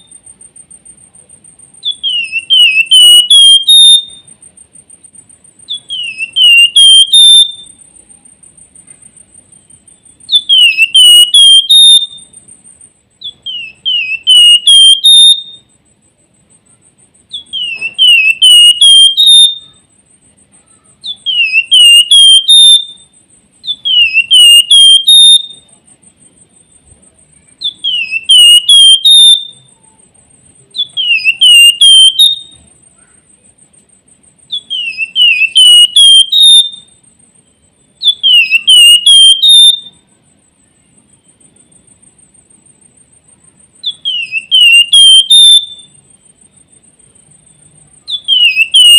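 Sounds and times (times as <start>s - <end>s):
bird whistled song: 1.8s - 4.4s, 5.6s - 8.0s, 9.4s - 15.8s, 17.2s - 19.9s, 20.7s - 25.7s, 27.5s - 29.8s, 30.7s - 32.8s, 34.4s - 40.0s, 43.8s - 48.9s.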